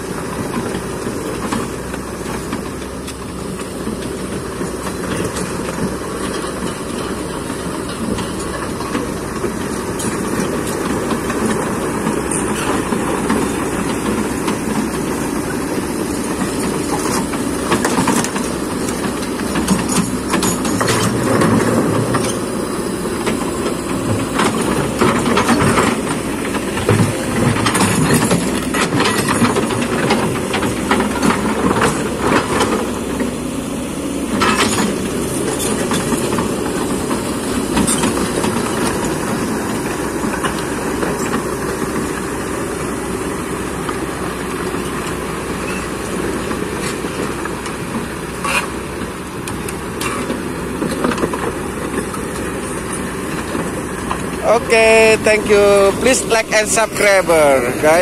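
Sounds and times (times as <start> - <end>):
excavator diesel engine under load: 0.0 - 58.0
metal clanks and knocks: 15.8 - 33.3.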